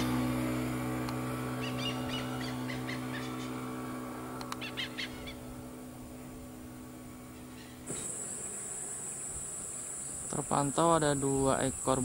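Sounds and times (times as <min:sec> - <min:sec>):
steady low hum: 0:00.0 - 0:12.0
bird calling in short notes: 0:04.6 - 0:05.5.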